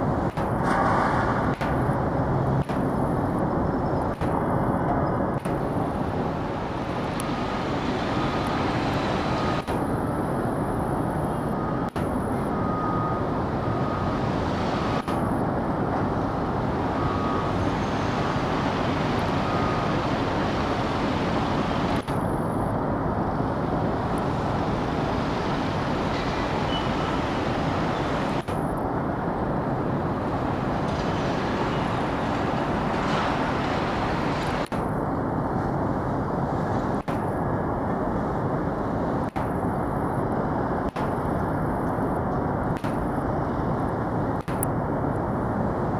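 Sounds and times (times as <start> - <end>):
road traffic noise: 0.0 - 45.9.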